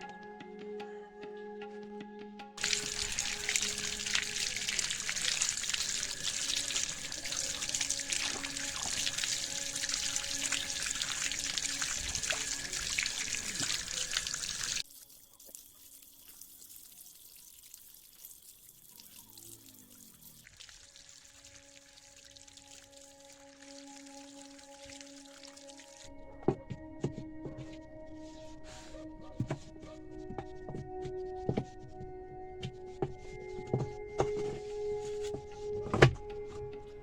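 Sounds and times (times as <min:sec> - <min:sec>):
faint background music: 0:00.0 - 0:20.1, 0:20.8 - 0:37.0
water running into washing machine: 0:02.6 - 0:26.1.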